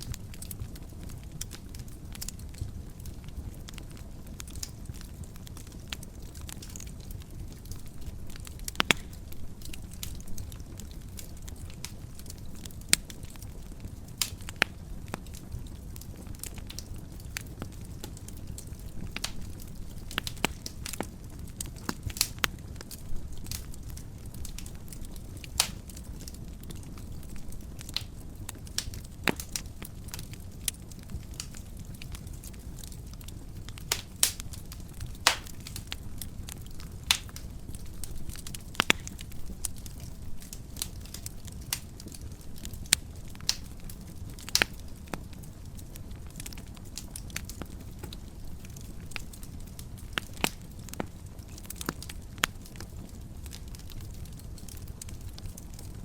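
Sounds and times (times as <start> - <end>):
low rumble of flame: 0.0 - 56.0
wood fire crackling: 0.0 - 56.0
sharp pops and snaps: 7.7 - 10.2, 17.6 - 26.3, 27.9 - 43.7, 44.4 - 44.9, 47.2 - 52.6.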